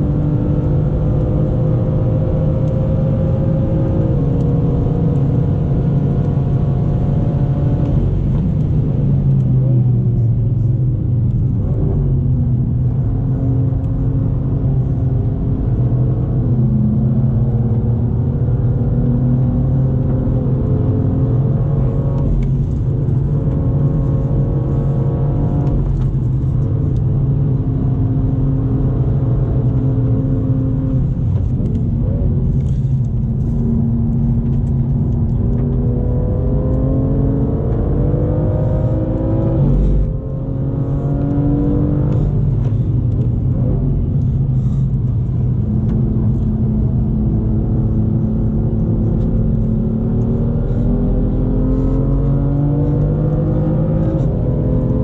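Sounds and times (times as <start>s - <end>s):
car engine accelerating: 0.0s - 55.0s
road and tyre rumble: 0.0s - 55.0s.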